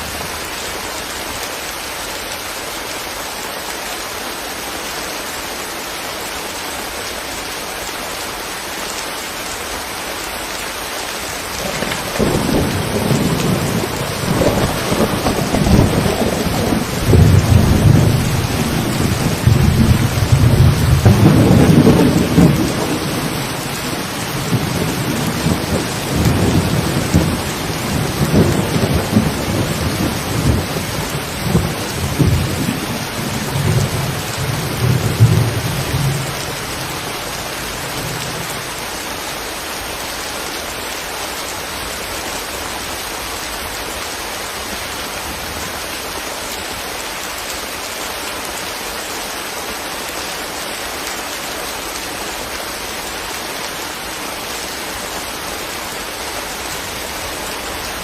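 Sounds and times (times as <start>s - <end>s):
steady rain: 0.0s - 58.0s
rumble of thunder: 11.6s - 38.7s.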